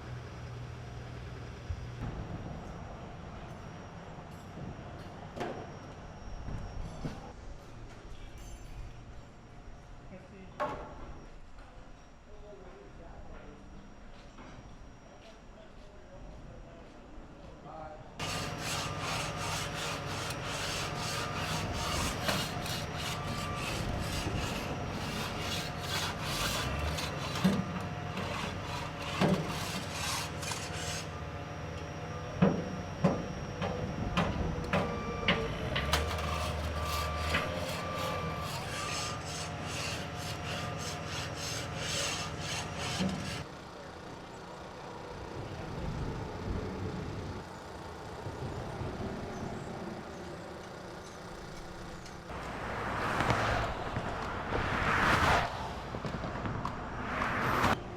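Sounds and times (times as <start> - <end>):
rapid rasping and grinding: 18.2 - 31.2, 36.0 - 43.4
machinery engine running: 18.2 - 38.7.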